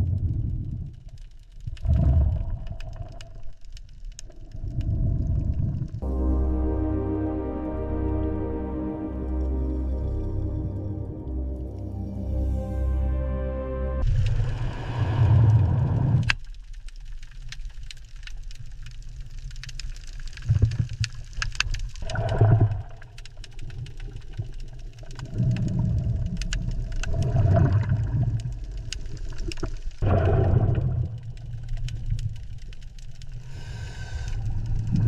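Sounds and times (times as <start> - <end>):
sharp clicks and crackles: 0.0 - 6.0, 15.4 - 35.0
deep low rumbling: 0.0 - 16.3.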